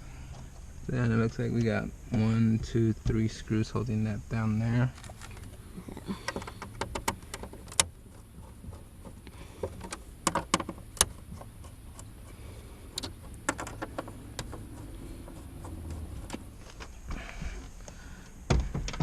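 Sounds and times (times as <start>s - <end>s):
steady low hum: 0.0s - 19.0s
clicks and knocks of plastic trim: 18.5s - 19.0s.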